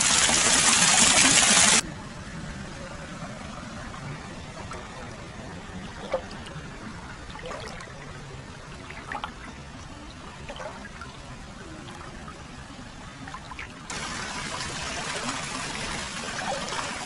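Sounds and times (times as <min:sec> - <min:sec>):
water splashes: 0:03.1 - 0:17.0
water trickling and pouring: 0:04.5 - 0:12.5, 0:13.1 - 0:17.0.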